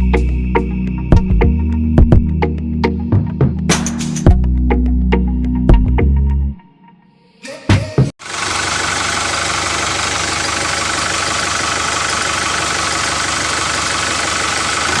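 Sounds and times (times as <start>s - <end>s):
engine chugging: 8.2s - 15.0s.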